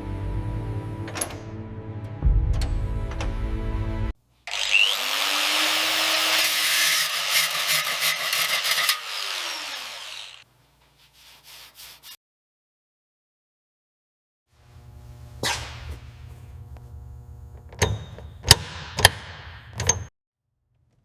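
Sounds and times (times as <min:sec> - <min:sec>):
music: 0:00.0 - 0:04.2
power tool grinding workpiece: 0:04.5 - 0:10.4.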